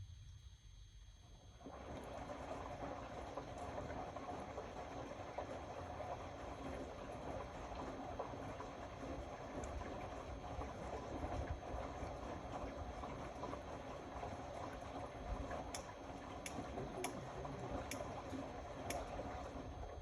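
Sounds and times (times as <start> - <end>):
washing machine sloshing: 1.4 - 20.0.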